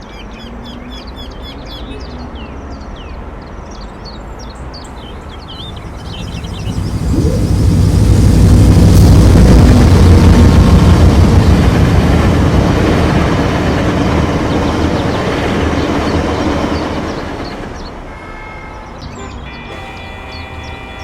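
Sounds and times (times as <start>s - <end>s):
train passing: 4.6s - 21.0s.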